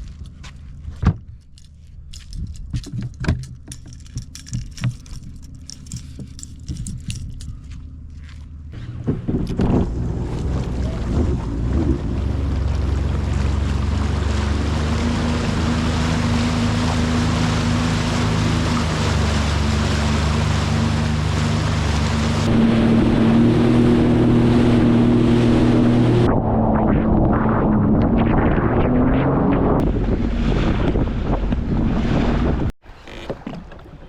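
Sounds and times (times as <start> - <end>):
jet ski engine running: 3.5 - 34.0
water and wind rushing: 8.7 - 34.0.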